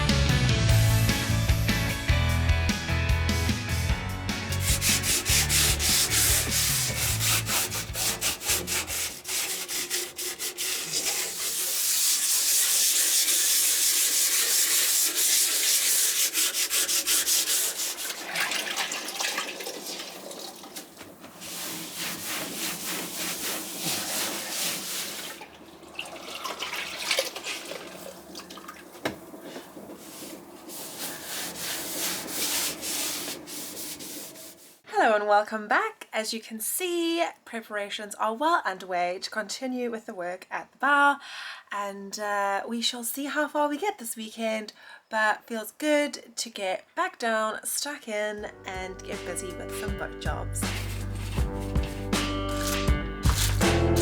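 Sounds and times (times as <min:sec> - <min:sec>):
sanding rasping rub: 0:04.5 - 0:18.2, 0:21.4 - 0:25.3, 0:30.0 - 0:34.8, 0:50.6 - 0:54.0
music track: 0:48.4 - 0:54.0.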